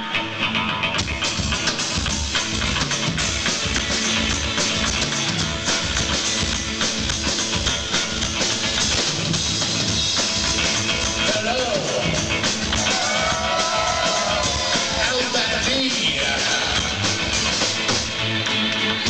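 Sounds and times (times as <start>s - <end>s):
electric guitar: 0.0s - 19.0s
live rock band playing: 0.0s - 19.0s
drum beat: 1.0s - 18.2s.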